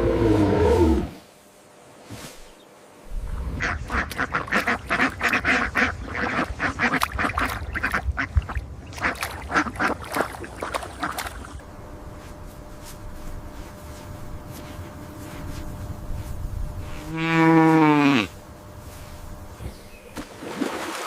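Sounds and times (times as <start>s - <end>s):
poultry quacking and calling: 3.6s - 11.6s.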